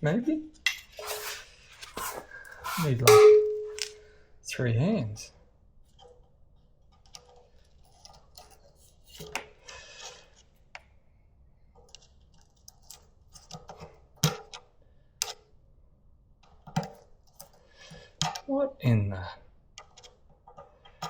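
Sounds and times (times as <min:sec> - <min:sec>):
metallic knocks: 0:03.0 - 0:04.0.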